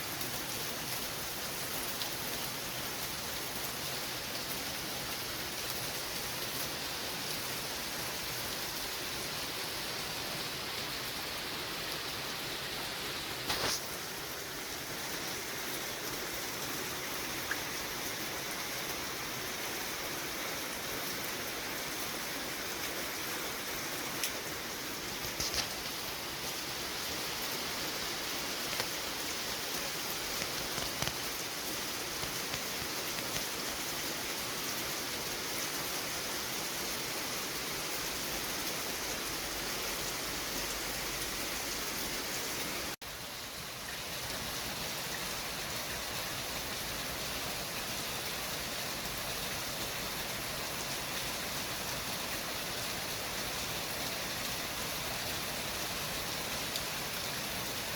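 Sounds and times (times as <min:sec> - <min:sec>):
city traffic hiss: 0:01.1 - 0:57.9
faint ticks: 0:30.3 - 0:31.3.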